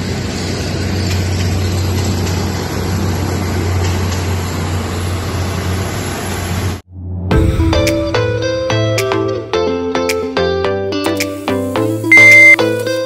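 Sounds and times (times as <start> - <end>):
diesel train rumbling past: 0.0 - 9.8
strong low hum: 6.9 - 9.5.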